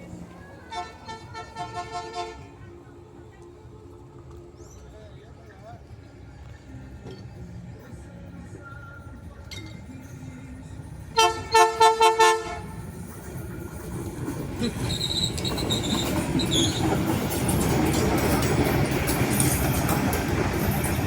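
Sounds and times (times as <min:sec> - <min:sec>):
train running noise: 0:00.0 - 0:21.0
short train horn blasts: 0:00.7 - 0:02.5, 0:11.2 - 0:12.8
high wheel squeal: 0:14.5 - 0:19.9.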